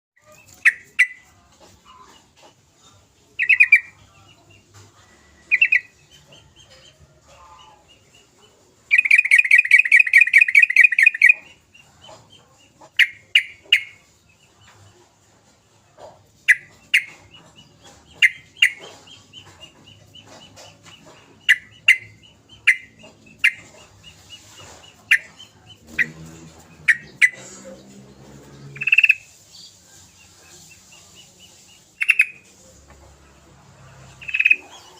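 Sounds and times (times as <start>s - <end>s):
bird chattering: 0.2s - 2.6s, 3.3s - 4.7s, 5.4s - 14.5s, 16.0s - 32.5s, 34.0s - 34.9s
bird calling: 8.9s - 11.6s, 18.2s - 27.6s.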